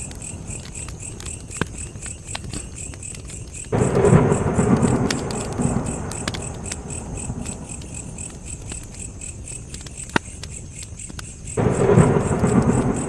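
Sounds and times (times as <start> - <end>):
campfire crackling: 0.0 - 13.0
crickets chirping: 0.0 - 13.0
low rumble: 3.8 - 8.2, 11.6 - 13.0.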